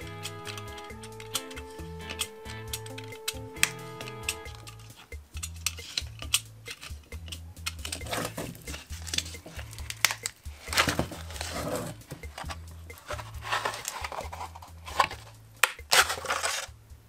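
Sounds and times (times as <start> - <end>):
background music with bass line: 0.0 - 17.0
plastic crinkling and tearing: 15.9 - 16.7.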